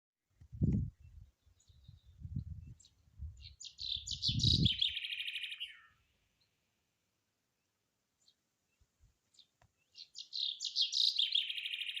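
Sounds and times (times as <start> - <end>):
small bird chirping trill: 0.9 - 6.6, 8.2 - 12.0.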